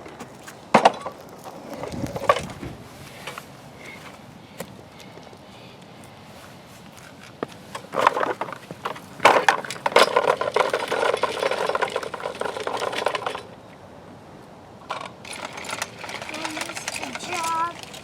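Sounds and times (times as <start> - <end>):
toy truck rattling and scraping: 0.0 - 2.6, 7.7 - 13.6, 14.8 - 18.0.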